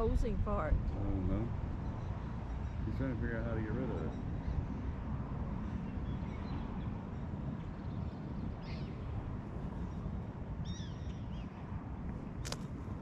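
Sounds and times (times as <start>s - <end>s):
low outdoor rumble: 0.0s - 13.0s
sharp click: 12.4s - 12.7s.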